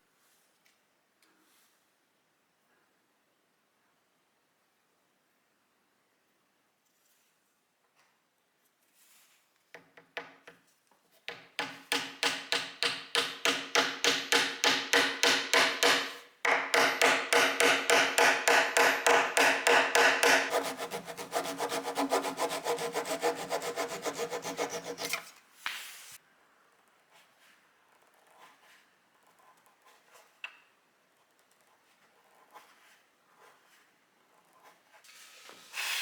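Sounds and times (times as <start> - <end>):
hand tool striking wood: 11.3 - 25.2.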